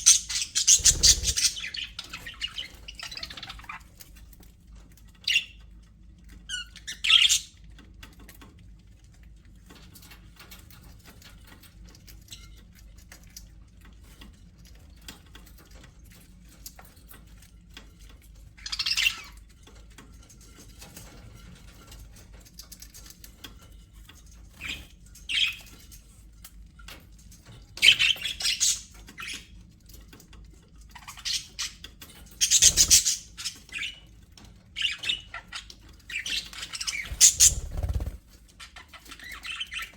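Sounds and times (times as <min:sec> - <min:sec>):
budgerigars squawking and chirping: 0:00.0 - 0:03.8, 0:32.4 - 0:34.0, 0:34.8 - 0:39.9
faint bird chatter and clicks: 0:00.0 - 0:39.9.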